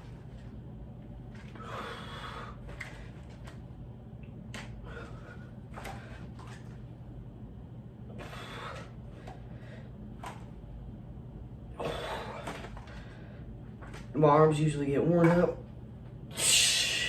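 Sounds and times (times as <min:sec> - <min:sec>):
steady low hum: 0:00.0 - 0:17.0
man breathing hard: 0:01.5 - 0:03.2, 0:04.8 - 0:06.3, 0:08.1 - 0:10.0, 0:11.8 - 0:13.5, 0:16.4 - 0:17.0.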